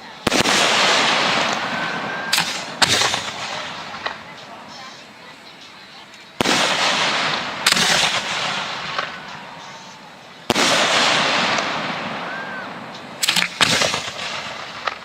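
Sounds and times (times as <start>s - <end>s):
fireworks sharp cracks: 0.0s - 5.0s, 6.4s - 15.0s
fireworks loud reports: 0.0s - 15.0s.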